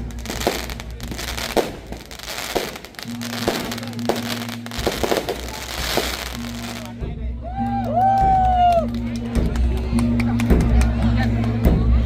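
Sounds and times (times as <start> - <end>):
fireworks banging: 0.0 - 7.1
music playing: 0.0 - 12.0.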